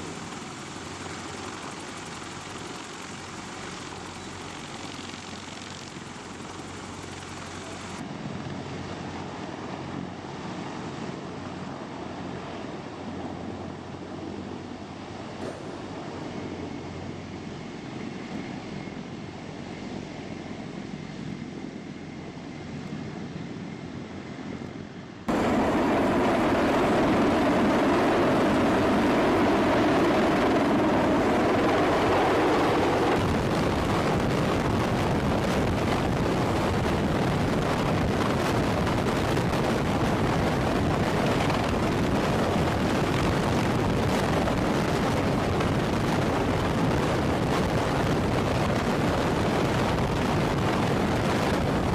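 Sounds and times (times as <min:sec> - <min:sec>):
aircraft noise: 0:00.0 - 0:51.9
wind buffeting: 0:25.3 - 0:51.9.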